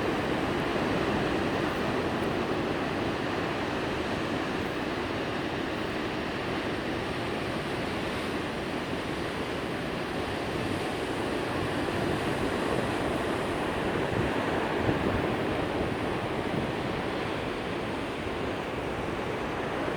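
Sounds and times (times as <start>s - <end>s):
ocean waves surf: 0.0s - 19.9s.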